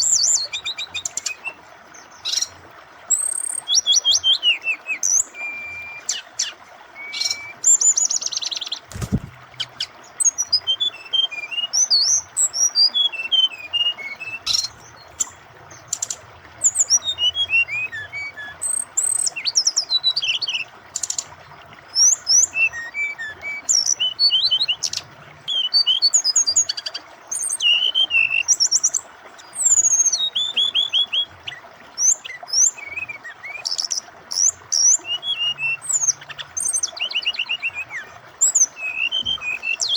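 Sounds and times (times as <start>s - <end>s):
bird singing chirps and trills: 0.0s - 39.9s
flowing water rushing: 0.0s - 39.9s.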